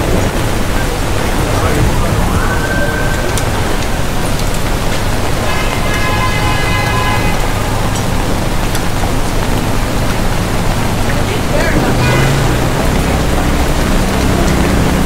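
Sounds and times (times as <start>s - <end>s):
heavy rain on wet street: 0.0s - 15.0s
traffic running by: 0.0s - 15.0s
held pitched tone: 1.3s - 9.5s.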